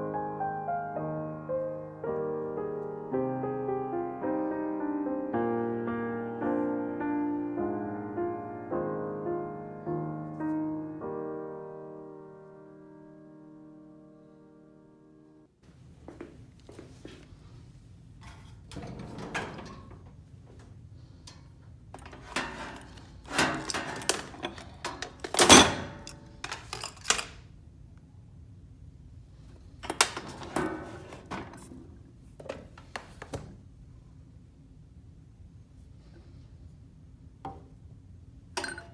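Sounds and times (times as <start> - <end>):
scraping rustles: 22.0 - 27.4.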